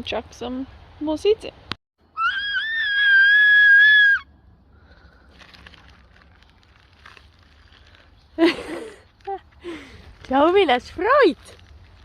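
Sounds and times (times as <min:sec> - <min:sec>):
child squealing: 0:02.2 - 0:04.3.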